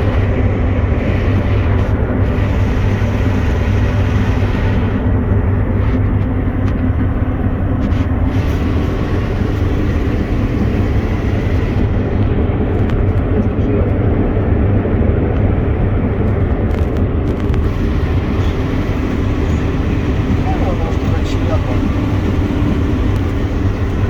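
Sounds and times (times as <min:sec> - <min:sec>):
combine harvester drone: 0:00.0 - 0:24.0.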